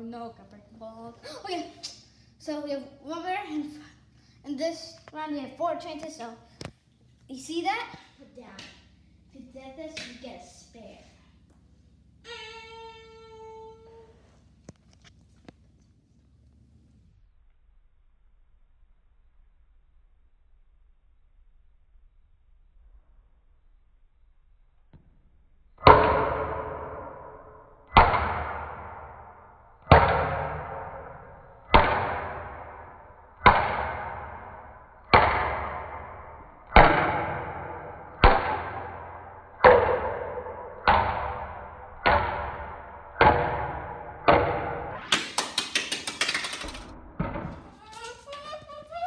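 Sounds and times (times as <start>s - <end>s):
plastic ball bouncing on floor: 33.4s - 49.0s.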